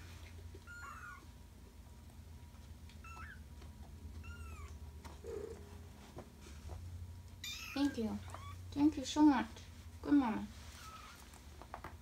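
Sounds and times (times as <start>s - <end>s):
kitten meowing: 0.7s - 1.2s, 7.4s - 8.6s.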